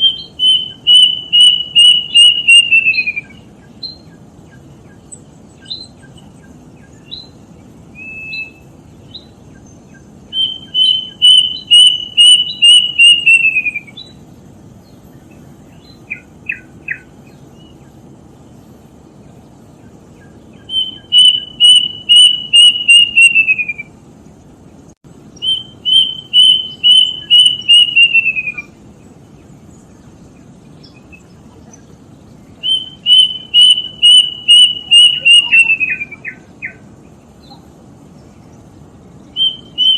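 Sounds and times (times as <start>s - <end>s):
cuckoo whistling: 0.0s - 4.1s, 7.9s - 9.3s, 10.3s - 14.2s, 20.6s - 24.0s, 25.4s - 28.8s, 32.6s - 36.8s, 39.3s - 39.9s.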